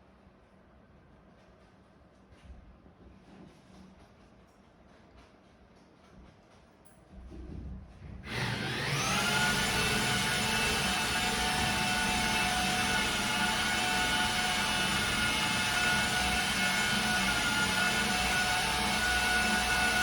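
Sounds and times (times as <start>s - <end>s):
power tool motor whine: 8.3s - 20.0s.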